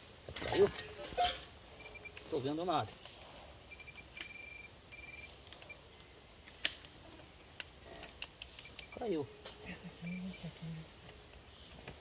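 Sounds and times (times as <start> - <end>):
metal detector buzzing: 3.7 - 5.3.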